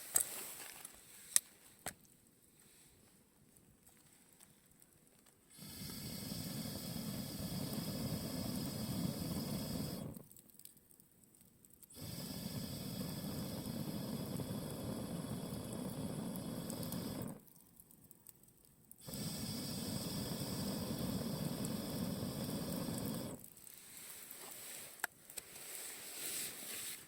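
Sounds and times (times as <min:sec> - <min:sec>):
campfire flames rushing hiss: 0:05.5 - 0:10.3, 0:12.0 - 0:17.4, 0:19.0 - 0:27.0.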